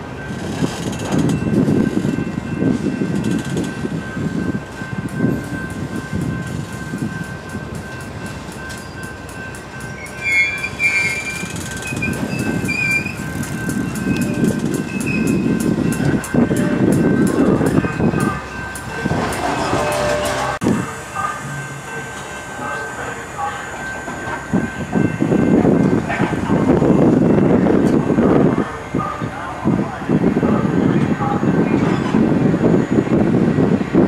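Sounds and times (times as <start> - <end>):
freight cars rolling on rails: 0.0 - 34.0
high wheel squeals: 9.8 - 15.6.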